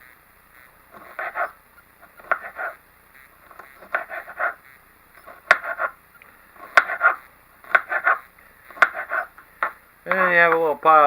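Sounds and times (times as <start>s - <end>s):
knife chopping on cutting board: 6.6s - 8.2s, 8.8s - 9.3s.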